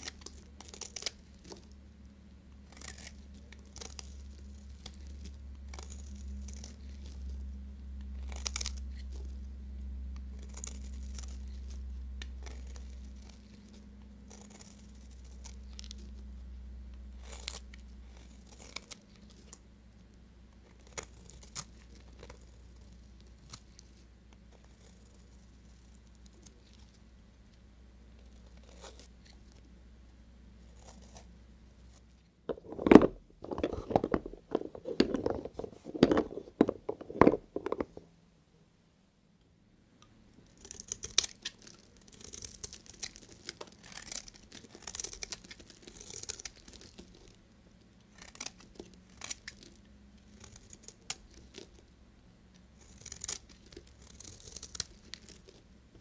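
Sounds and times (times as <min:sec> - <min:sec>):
knife cutting through soap: 0:02.7 - 0:07.2, 0:12.4 - 0:16.2, 0:17.2 - 0:19.4, 0:30.7 - 0:31.3.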